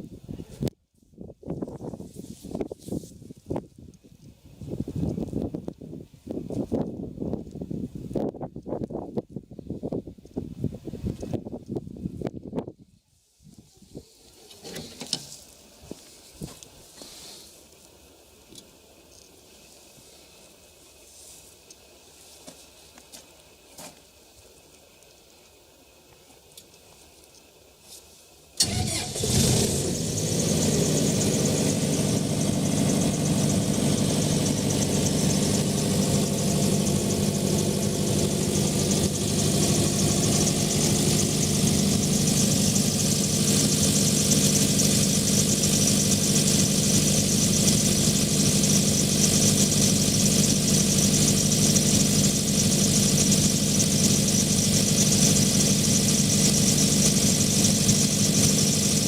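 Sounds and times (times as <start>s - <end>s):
diesel generator running: 28.6s - 59.0s.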